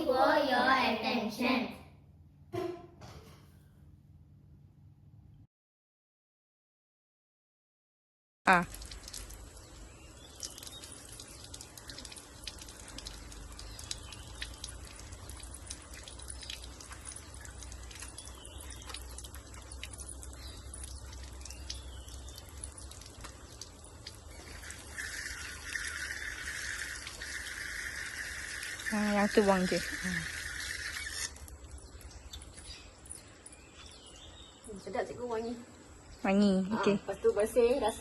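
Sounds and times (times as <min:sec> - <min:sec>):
tap water running: 0:08.5 - 0:33.2
water dripping: 0:08.5 - 0:34.8.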